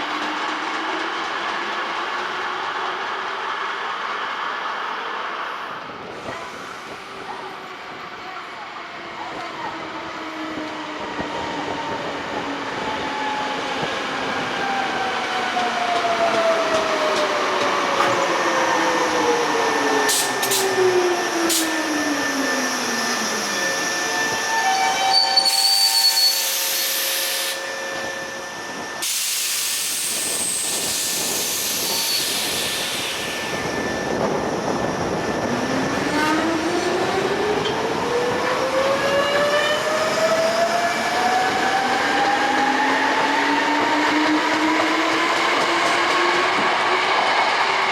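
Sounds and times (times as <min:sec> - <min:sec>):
air brake hiss: 0:20.1 - 0:20.7, 0:29.0 - 0:33.4.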